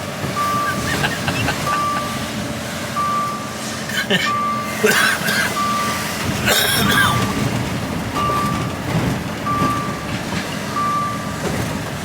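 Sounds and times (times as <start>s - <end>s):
truck engine rumbling: 0.0s - 12.0s
reversing alarm beeping: 0.2s - 4.8s, 5.5s - 6.3s, 8.2s - 11.7s.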